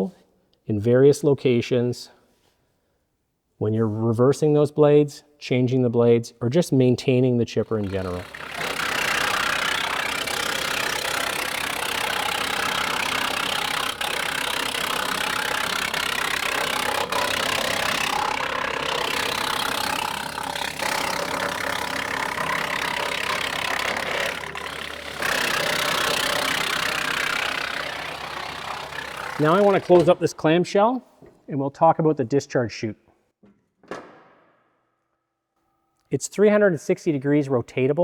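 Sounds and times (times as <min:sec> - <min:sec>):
engine running: 0:07.6 - 0:30.3.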